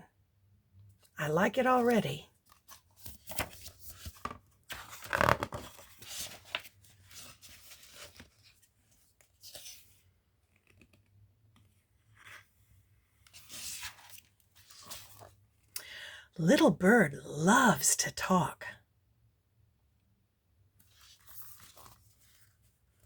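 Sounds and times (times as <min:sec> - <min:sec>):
book pages rustling: 0:02.4 - 0:15.7, 0:20.8 - 0:23.0.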